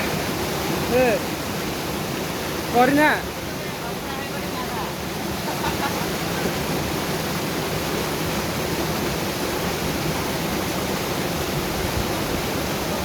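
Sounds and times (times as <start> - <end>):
fast-flowing river roar: 0.0 - 13.0.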